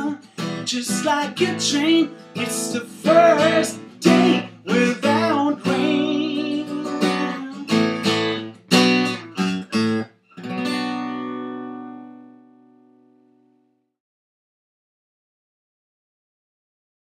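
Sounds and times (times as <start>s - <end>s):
person singing: 0.0s - 7.8s
acoustic guitar strummed chords: 0.0s - 13.6s.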